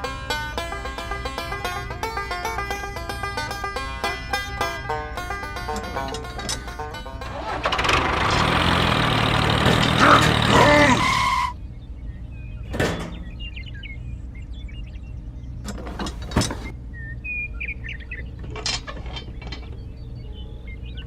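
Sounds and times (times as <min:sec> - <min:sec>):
low steady hum: 0:00.0 - 0:08.5
birds chirping: 0:00.0 - 0:21.0
sharp knocks: 0:12.7 - 0:13.4.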